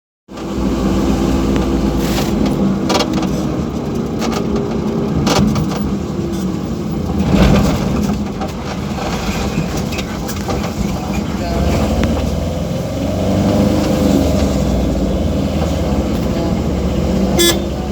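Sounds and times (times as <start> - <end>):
vehicle engine running: 0.3 - 17.9.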